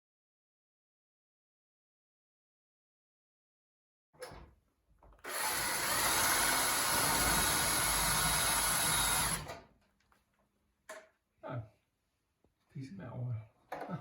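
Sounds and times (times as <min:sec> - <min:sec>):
power drill whining: 0:05.1 - 0:09.7.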